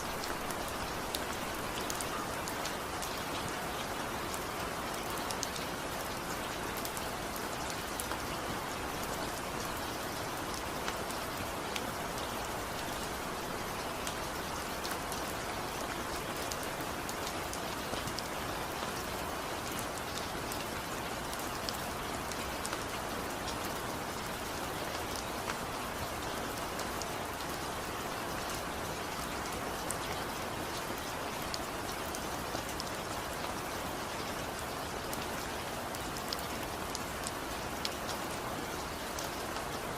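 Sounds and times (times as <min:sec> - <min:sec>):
raindrops ticking on a surface: 0:00.0 - 0:39.9
steady rain hissing: 0:00.0 - 0:39.9.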